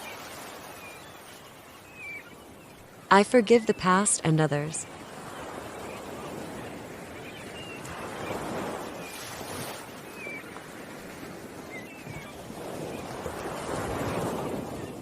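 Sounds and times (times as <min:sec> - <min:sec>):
ocean waves washing in: 0:00.0 - 0:15.0.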